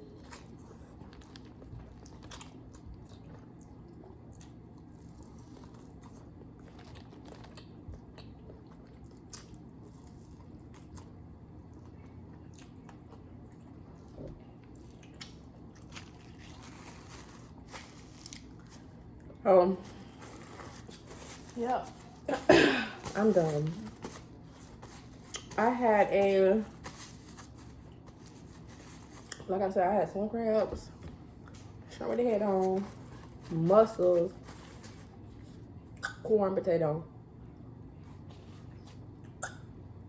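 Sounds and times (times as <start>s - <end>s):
soft chewing and biting: 0.0s - 22.3s, 23.8s - 25.6s, 26.7s - 29.5s.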